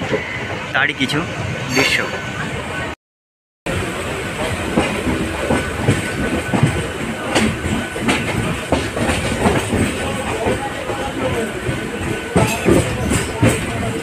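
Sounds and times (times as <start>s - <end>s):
train rumbling on track: 0.0s - 3.0s, 3.7s - 14.0s
wheels clacking over rail joints: 4.4s - 14.0s.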